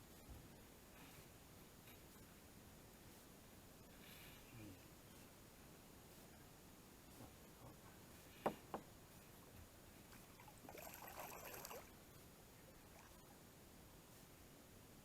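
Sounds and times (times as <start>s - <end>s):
trickling splashing water: 10.4s - 11.9s.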